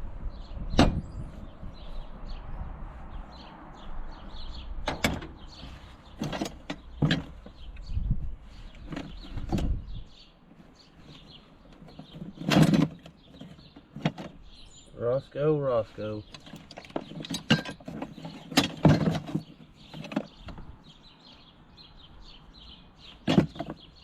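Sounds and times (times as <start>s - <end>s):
metal parts knocking and clanking: 6.2s - 7.6s, 11.1s - 14.4s, 16.3s - 20.6s, 23.2s - 23.9s.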